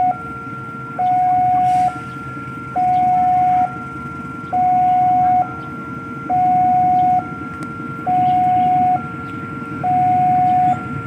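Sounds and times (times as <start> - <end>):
level crossing two-tone alarm: 0.0 - 11.0
steady low rumble: 0.0 - 11.0.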